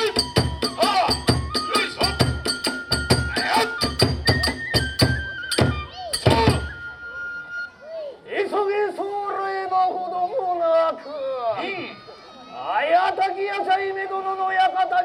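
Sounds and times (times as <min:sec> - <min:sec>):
drums beating quick rhythm: 0:00.0 - 0:06.8
small hand cymbals: 0:00.0 - 0:07.1
bamboo flute holding notes: 0:00.0 - 0:08.3.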